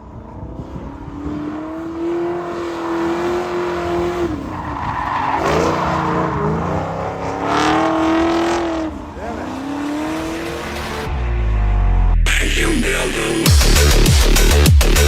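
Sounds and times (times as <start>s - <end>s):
car engine revving: 0.0s - 15.0s
tyres squealing: 4.2s - 10.4s.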